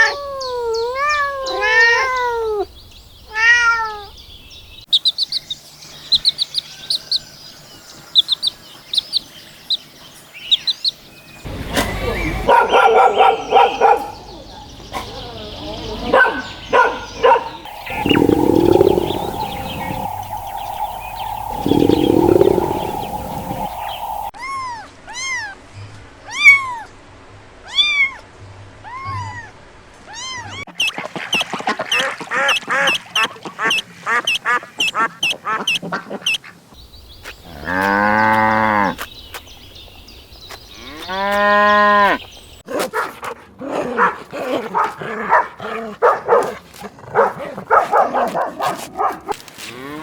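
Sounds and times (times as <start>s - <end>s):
drawn-out pitched animal calls: 16.8s - 24.3s
steady animal tone: 17.2s - 24.3s
low noisy bursts: 17.7s - 24.3s
quick high animal calls: 17.7s - 24.3s
short arched chirps: 17.7s - 24.3s.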